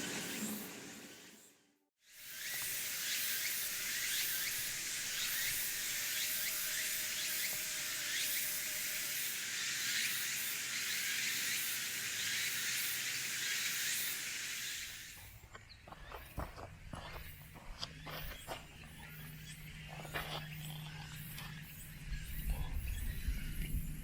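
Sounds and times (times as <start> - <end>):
meat sizzling in hot fat: 2.3 - 15.2.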